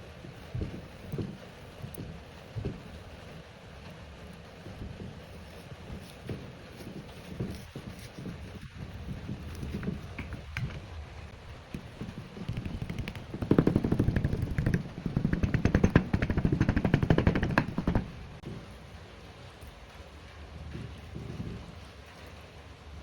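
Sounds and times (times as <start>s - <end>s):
rapid sharp knocks: 9.5s - 18.4s
faint kitchen background noise: 18.4s - 23.0s.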